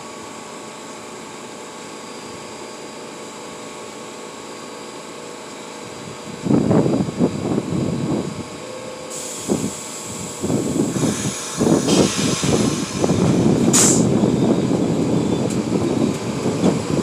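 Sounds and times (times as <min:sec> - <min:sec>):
subway train rumbling on rails: 0:00.0 - 0:17.0
short hiss: 0:10.9 - 0:13.0, 0:13.7 - 0:14.1.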